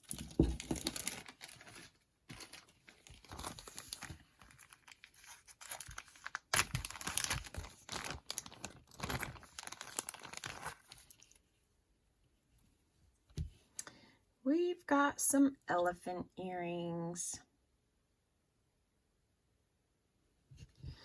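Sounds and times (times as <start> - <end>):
packaging crinkling and tearing: 0.0 - 11.4.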